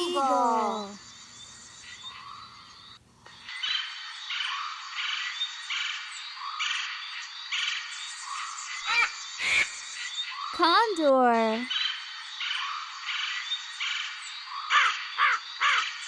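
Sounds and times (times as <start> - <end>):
background hiss: 0.0 - 3.4.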